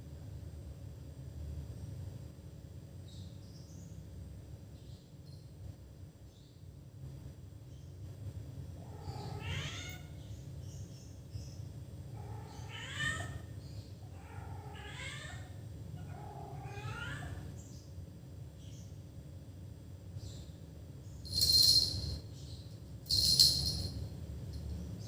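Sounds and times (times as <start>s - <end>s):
cat meowing: 8.8s - 10.2s, 12.2s - 13.5s, 14.1s - 17.5s.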